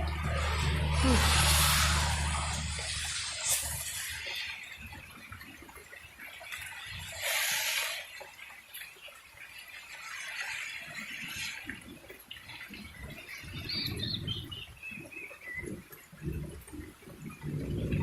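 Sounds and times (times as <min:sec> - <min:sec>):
low rumbling: 0:00.0 - 0:04.2, 0:15.6 - 0:18.0.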